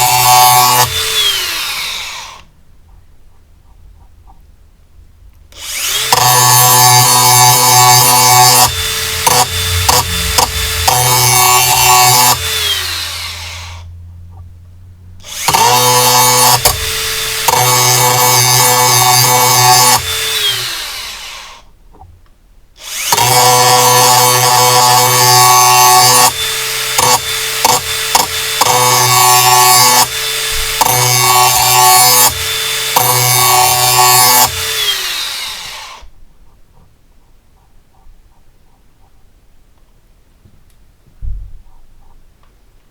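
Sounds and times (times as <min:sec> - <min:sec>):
angle grinder grinding steel: 0:00.0 - 0:02.5, 0:05.6 - 0:13.9, 0:15.2 - 0:21.6, 0:22.8 - 0:36.1
grinder spinning down: 0:00.0 - 0:02.5, 0:05.6 - 0:13.9, 0:15.2 - 0:21.6, 0:22.8 - 0:36.1.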